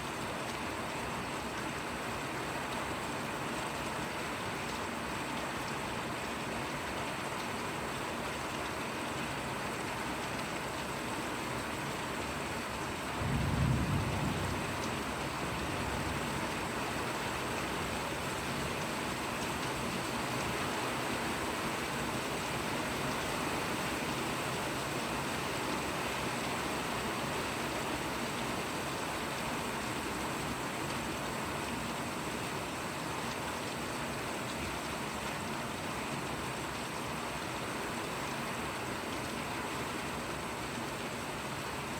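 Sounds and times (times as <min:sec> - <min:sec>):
steady rain falling: 0:00.0 - 0:41.9
deep rumble of thunder: 0:13.1 - 0:16.7.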